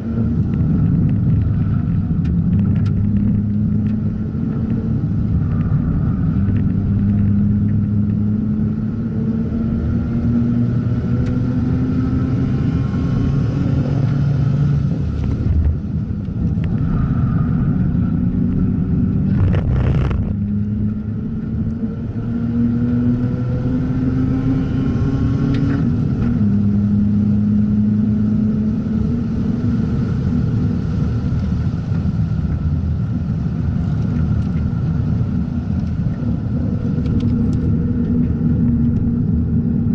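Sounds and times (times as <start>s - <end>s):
rotary engine revving: 19.2s - 20.6s.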